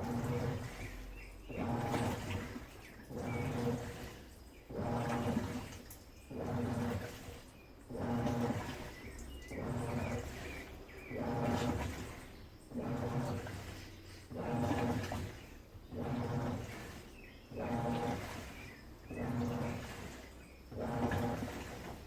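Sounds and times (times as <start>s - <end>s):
washing machine agitating: 0.0s - 22.0s.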